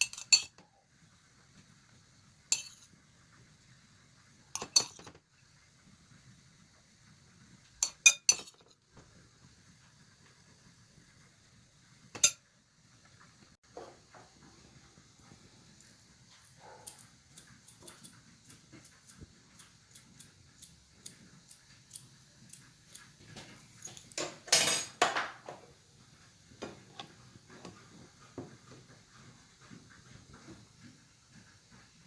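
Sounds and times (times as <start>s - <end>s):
utensils clinking on dishes: 0.0s - 0.6s, 2.6s - 2.9s, 4.6s - 5.2s, 7.8s - 8.8s, 12.2s - 12.4s, 23.4s - 25.6s.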